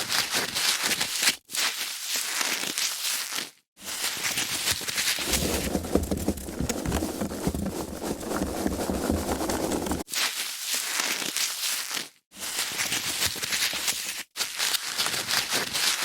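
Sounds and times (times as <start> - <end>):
foam packaging being rubbed: 5.2 - 10.1.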